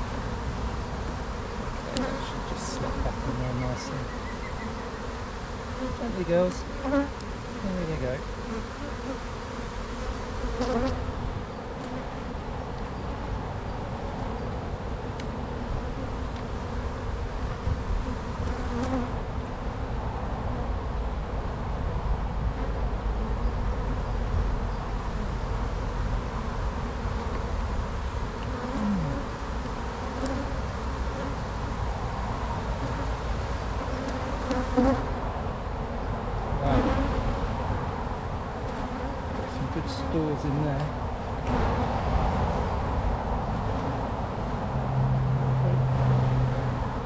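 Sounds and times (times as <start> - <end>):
honey bees buzzing: 0.0 - 21.6, 22.2 - 47.0.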